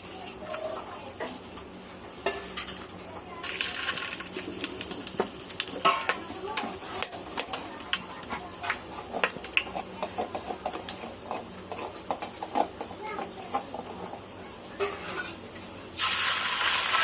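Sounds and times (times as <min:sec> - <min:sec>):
food sizzling in hot oil: 0:00.0 - 0:17.0
spatula scraping a pan: 0:06.9 - 0:14.2, 0:14.8 - 0:15.4.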